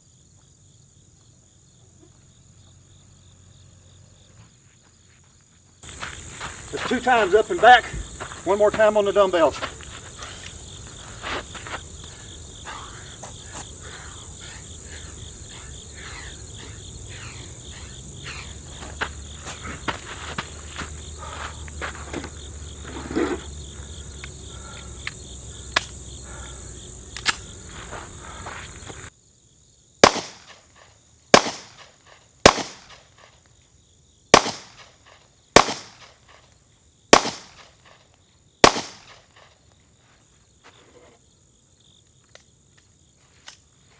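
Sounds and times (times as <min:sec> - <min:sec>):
insects chirping: 0:00.0 - 0:43.9
handgun shots: 0:30.0 - 0:30.6, 0:31.3 - 0:31.9, 0:32.5 - 0:33.0, 0:34.4 - 0:34.9, 0:35.6 - 0:36.2, 0:37.2 - 0:37.7, 0:38.6 - 0:39.2.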